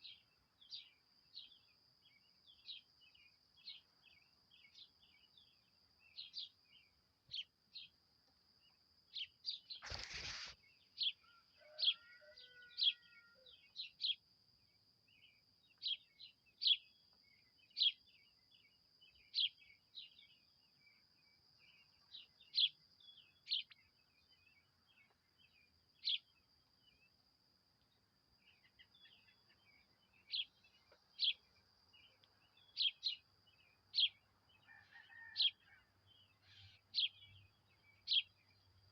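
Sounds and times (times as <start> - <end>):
brief burst of noise: 9.8 - 10.6.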